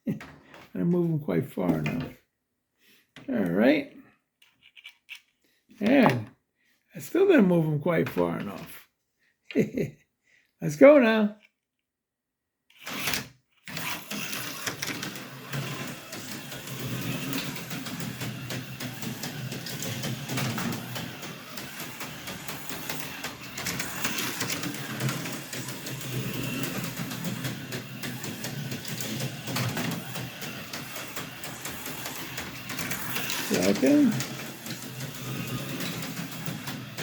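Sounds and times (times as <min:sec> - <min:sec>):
slot car motor whir: 0:12.8 - 0:37.0
slot car rattling on track: 0:13.8 - 0:37.0.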